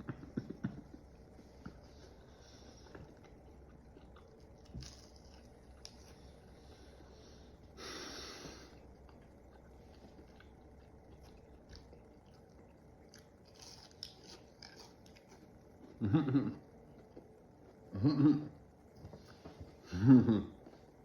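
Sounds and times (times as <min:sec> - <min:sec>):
chewing crispy food: 0:00.2 - 0:07.8, 0:08.6 - 0:19.4.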